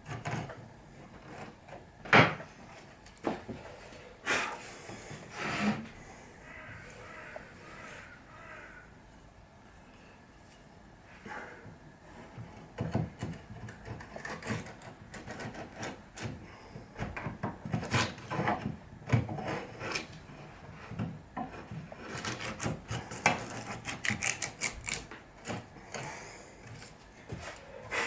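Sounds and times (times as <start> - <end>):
hand tool scraping wood: 12.1 - 16.7, 17.7 - 28.0.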